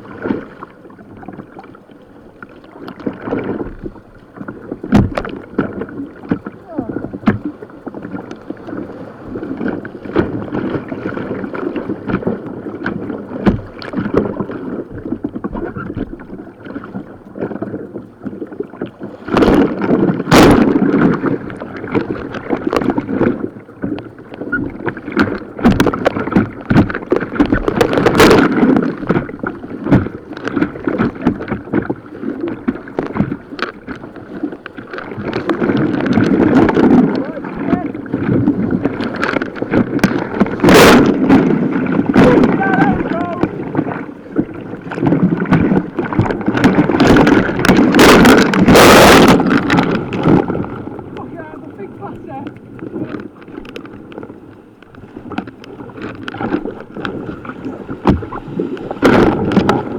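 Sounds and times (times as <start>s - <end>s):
paddle strokes and splashes: 0.0s - 59.9s
paddle knocking on hull: 0.2s - 59.9s
rushing white water: 34.9s - 53.8s.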